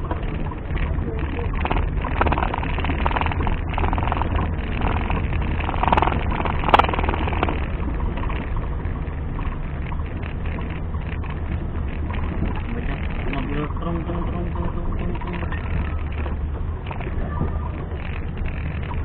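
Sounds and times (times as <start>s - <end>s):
off-road engine rumbling: 0.0s - 19.0s.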